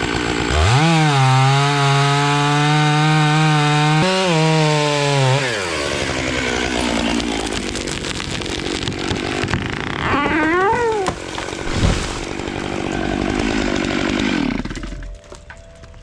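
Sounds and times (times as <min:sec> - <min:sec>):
chainsaw running and cutting: 0:00.0 - 0:15.9
heavy thump: 0:11.4 - 0:12.8.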